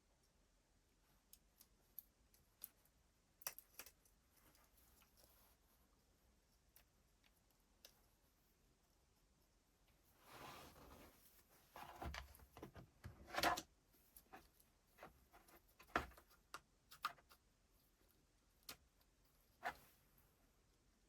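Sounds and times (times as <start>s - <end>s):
small parts clicking and tapping: 1.2s - 5.3s
soft rustle: 3.8s - 12.7s.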